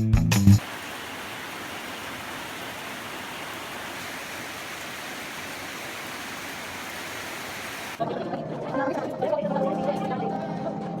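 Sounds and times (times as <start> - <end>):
steady rushing hiss: 0.6 - 8.0.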